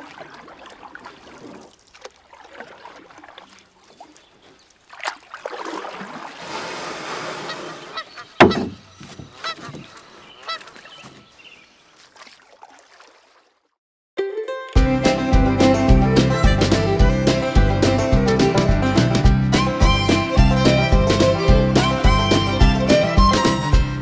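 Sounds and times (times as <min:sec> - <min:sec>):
large bird honking: 0:07.4 - 0:11.4.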